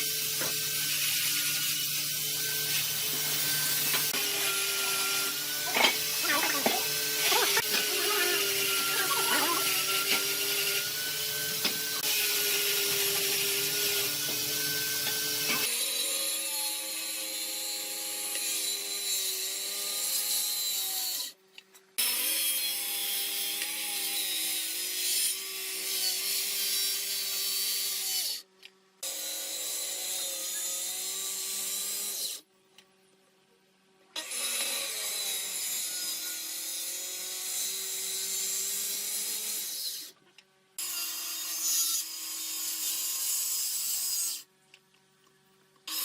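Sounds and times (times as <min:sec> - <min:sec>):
hiss of wood cutting: 0:00.0 - 0:15.7
power tool motor whine: 0:00.0 - 0:21.3, 0:34.2 - 0:40.1.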